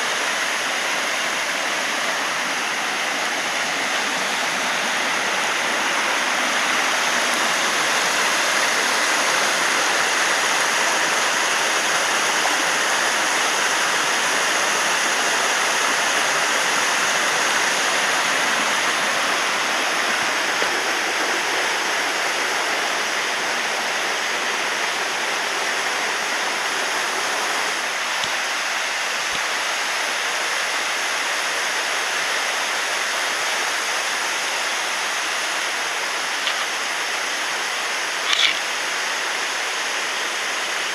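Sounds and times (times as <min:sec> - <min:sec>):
waterfall pouring: 0:00.0 - 0:30.3, 0:33.6 - 0:40.9.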